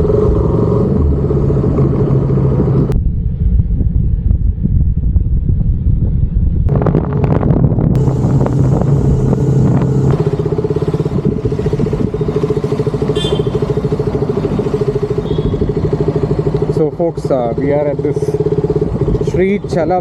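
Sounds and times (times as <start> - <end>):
motorcycle engine running: 4.1 - 20.0.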